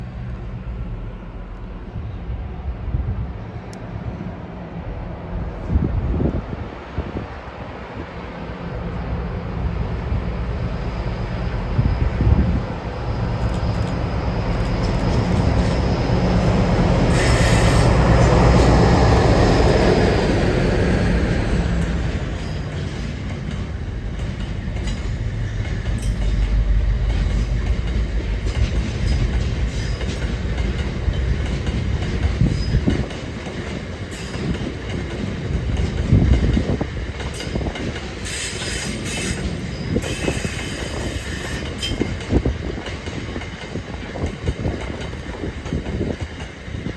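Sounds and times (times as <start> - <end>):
diesel locomotive engine drone: 0.0 - 46.9
high wheel squeal: 17.1 - 18.8, 38.2 - 42.2.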